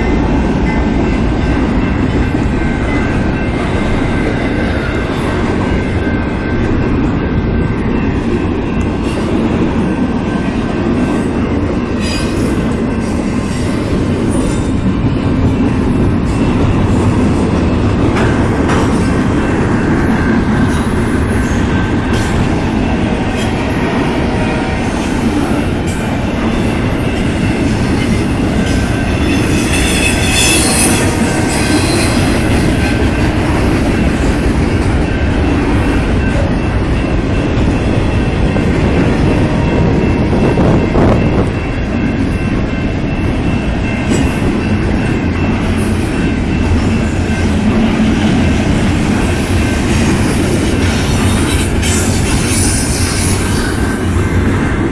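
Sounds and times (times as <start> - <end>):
train wheels rumbling on rail: 0.0 - 54.9
high wheel squeal: 29.2 - 32.9.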